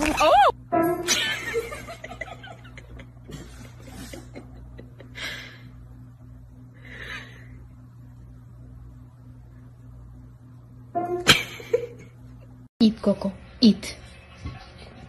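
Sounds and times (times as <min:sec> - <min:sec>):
low hum: 0:00.0 - 0:15.0
person snickering: 0:01.1 - 0:05.7.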